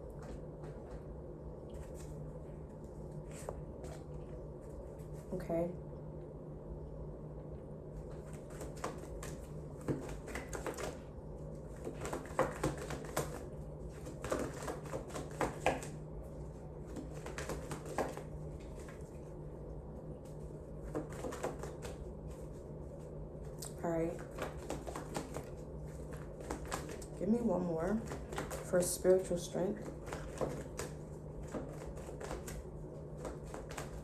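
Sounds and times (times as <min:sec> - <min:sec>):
low steady hum: 0:00.0 - 0:34.0
cards being shuffled: 0:24.2 - 0:27.2, 0:29.8 - 0:34.0.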